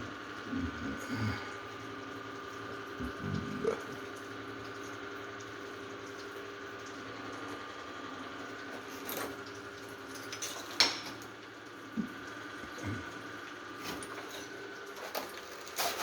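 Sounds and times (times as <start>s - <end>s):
steady hum: 0.0s - 4.6s.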